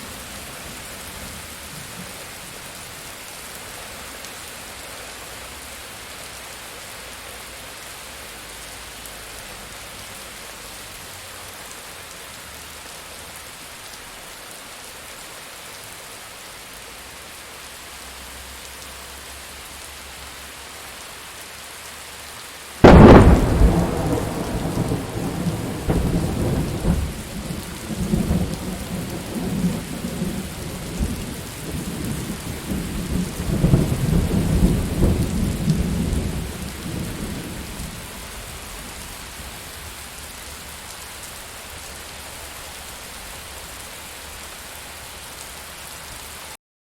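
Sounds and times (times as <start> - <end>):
steady rain falling: 0.0 - 46.6
close thunderclap: 22.8 - 38.0
rolling rumble of thunder: 22.8 - 39.1.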